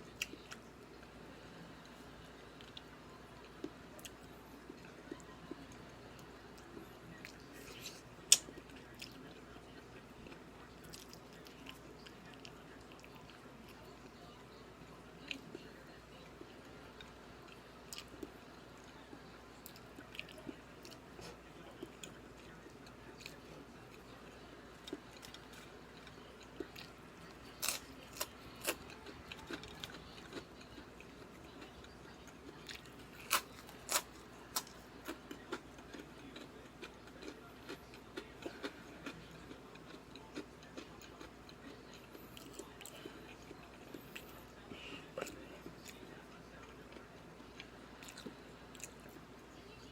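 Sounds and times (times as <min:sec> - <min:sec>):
person chewing and eating: 0:19.6 - 0:49.2.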